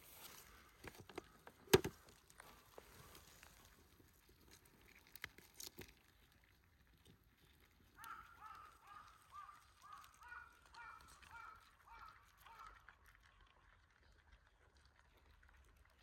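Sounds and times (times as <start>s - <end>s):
faint bird calls: 8.0s - 12.8s.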